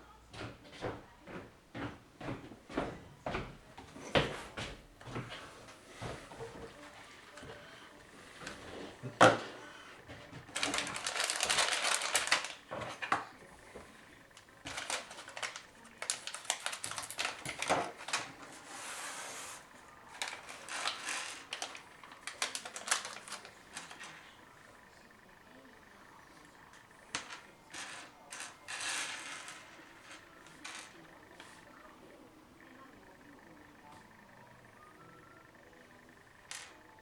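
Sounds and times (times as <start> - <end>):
computer parts clicking and rattling: 10.4 - 18.5, 20.0 - 25.9.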